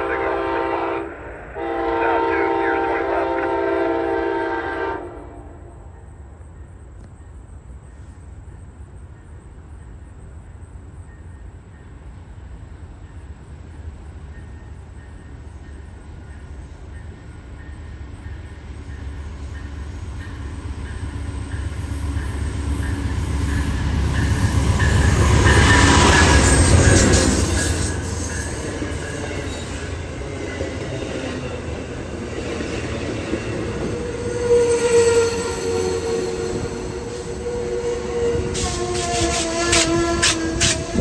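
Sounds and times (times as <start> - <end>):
train horn chord: 0.0 - 6.0, 33.9 - 41.0
approaching train rumble: 0.0 - 41.0
rail and wheel noise: 0.0 - 41.0.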